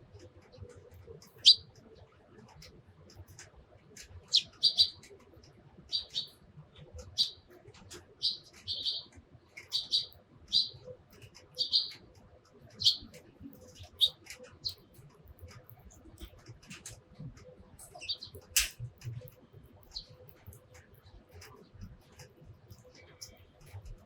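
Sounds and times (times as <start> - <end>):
sparrows chirping: 1.2 - 1.8, 4.2 - 5.2, 5.9 - 16.3, 17.8 - 18.7, 19.8 - 24.0.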